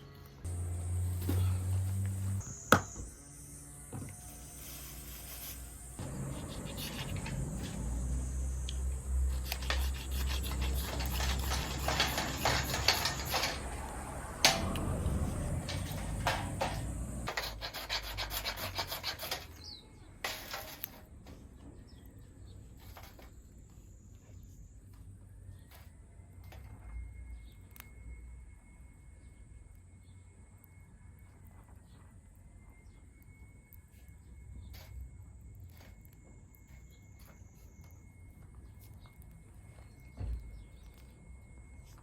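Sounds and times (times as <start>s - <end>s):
scraping and rubbing on wood: 4.2s - 21.1s.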